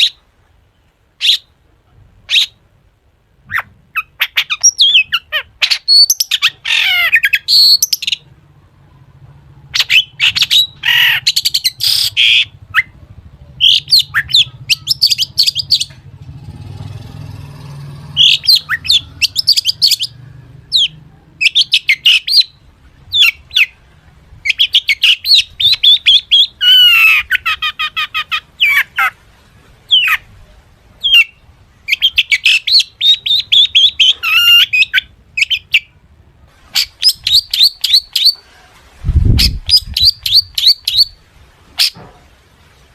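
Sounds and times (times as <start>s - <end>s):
shrike singing: 3.4s - 29.1s.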